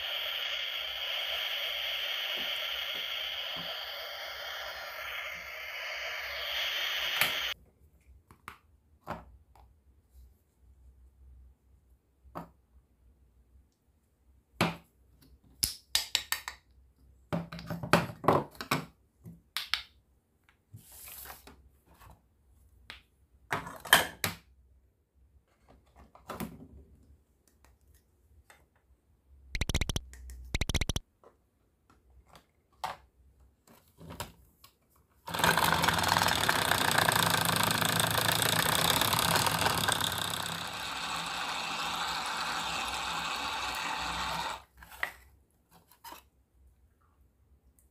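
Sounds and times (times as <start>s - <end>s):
toy mixer motor whirring: 0.0s - 7.6s, 29.6s - 31.0s, 35.3s - 44.7s
plastic toy pieces clicking: 29.6s - 31.0s, 35.3s - 41.2s.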